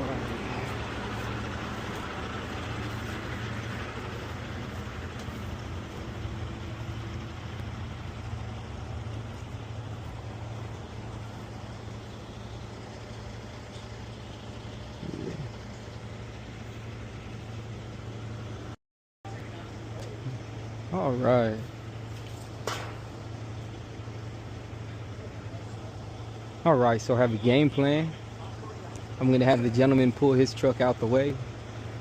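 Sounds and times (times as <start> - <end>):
falling whine: 0.0 - 18.7
truck engine idling: 0.0 - 32.0.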